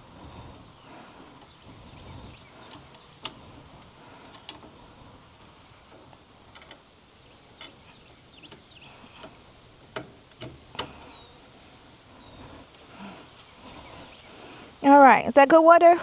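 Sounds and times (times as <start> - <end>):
quiet outdoor background: 0.0 - 16.0.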